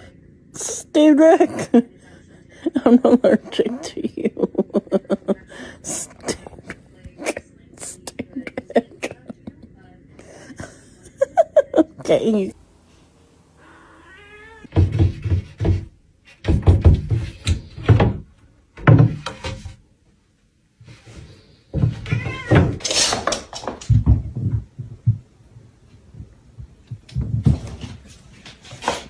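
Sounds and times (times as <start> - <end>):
cat meowing: 13.6 - 14.7, 22.0 - 22.8
loud knocks and thumps: 14.7 - 19.7.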